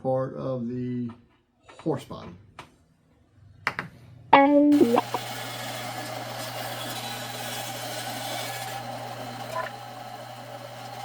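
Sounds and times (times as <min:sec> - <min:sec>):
power tool motor whine: 0:04.8 - 0:11.0.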